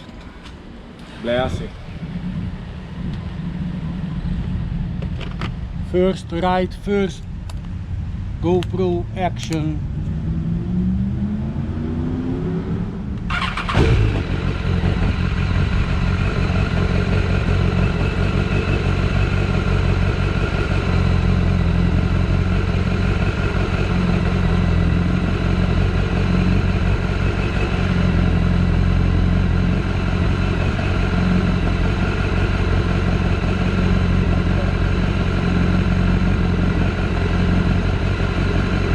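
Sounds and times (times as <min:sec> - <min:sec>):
motorcycle engine starting and idling: 0:13.2 - 0:38.9.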